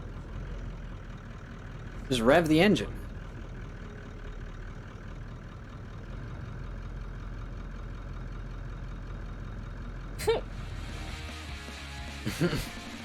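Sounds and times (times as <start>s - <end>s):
vehicle engine idling: 0.0s - 13.0s
short voice-like cry: 10.2s - 10.5s.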